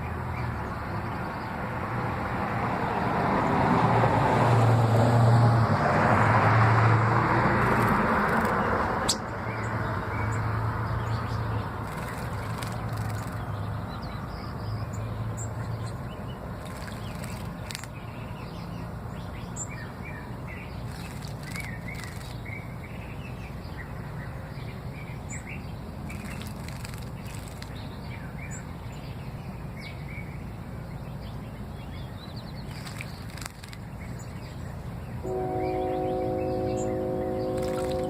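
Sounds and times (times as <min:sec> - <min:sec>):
wing-flapping splashes: 0:07.4 - 0:09.0, 0:11.7 - 0:13.6, 0:16.5 - 0:18.0, 0:20.8 - 0:22.4, 0:26.0 - 0:27.8, 0:32.6 - 0:34.6, 0:37.3 - 0:38.0
birds chirping: 0:07.5 - 0:38.0.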